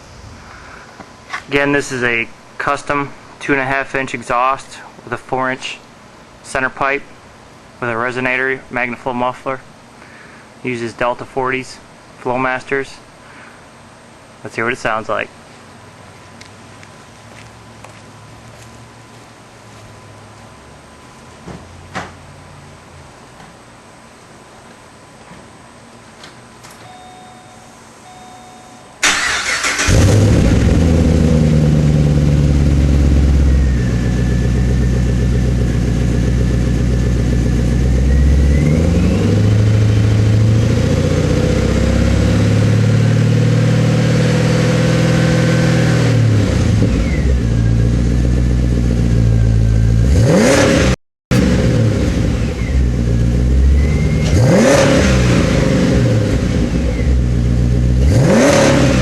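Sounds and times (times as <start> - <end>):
short beeps: 26.8 - 29.0
car engine starting and idling: 29.0 - 59.0
engine revving: 29.0 - 59.0.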